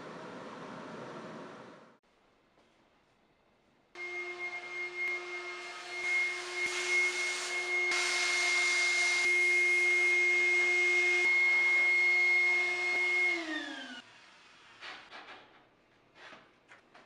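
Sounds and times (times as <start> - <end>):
electric power tool whining: 4.0 - 14.1.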